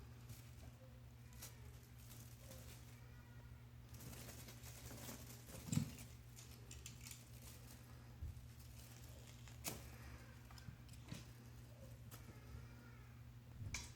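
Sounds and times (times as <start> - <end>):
low steady hum: 0.0 - 13.9
kitten tapping and scuffling: 4.0 - 11.4.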